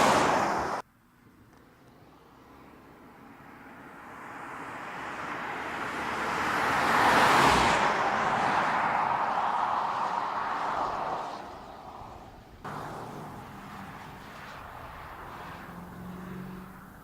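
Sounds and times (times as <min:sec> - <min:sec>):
car driving past: 0:04.2 - 0:17.0.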